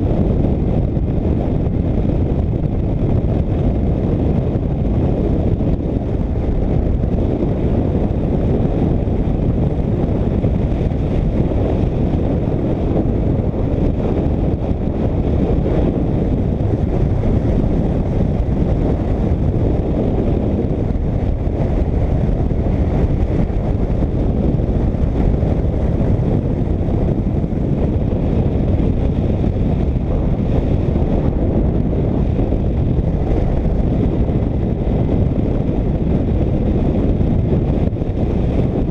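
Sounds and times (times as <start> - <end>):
road noise: 0.0 - 38.9
wind rushing over microphone: 0.0 - 38.9.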